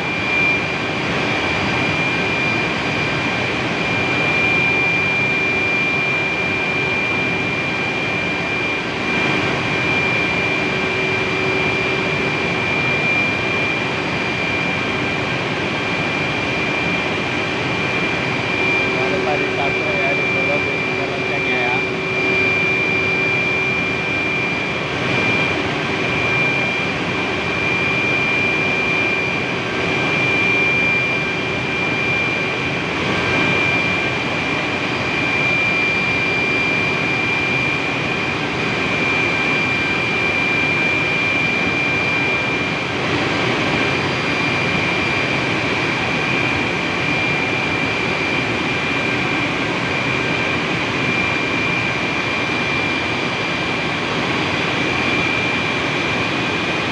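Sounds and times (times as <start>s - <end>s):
steam turbine running: 18.2s - 24.2s.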